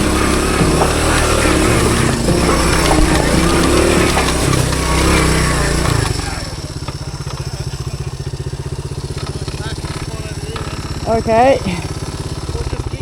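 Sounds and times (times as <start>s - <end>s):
small motorbike engine: 0.0s - 13.0s.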